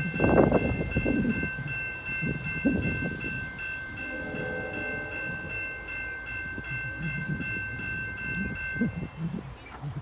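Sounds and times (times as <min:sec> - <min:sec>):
train rumbling on rails: 0:00.0 - 0:10.0
high pulsing electronic ringing: 0:00.2 - 0:09.0.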